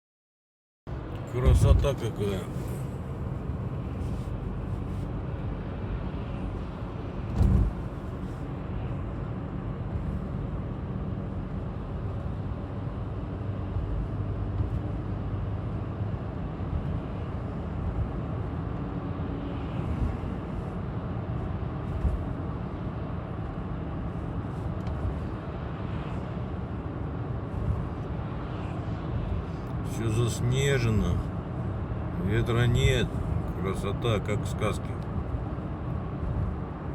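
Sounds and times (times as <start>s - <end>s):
short thump: 7.3s - 7.8s.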